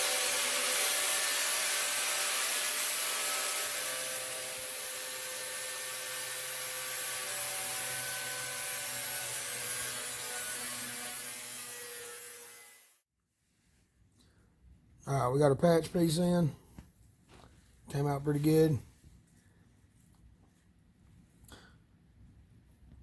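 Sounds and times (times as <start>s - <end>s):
power tool rasping sheet metal: 0.0s - 13.0s.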